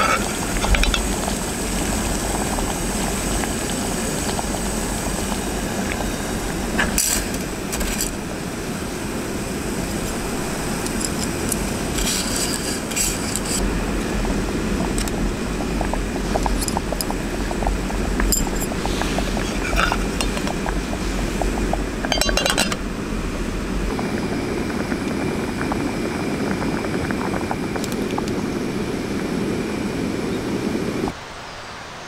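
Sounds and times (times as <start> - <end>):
cookware and utensils clinking: 22.0 - 22.8.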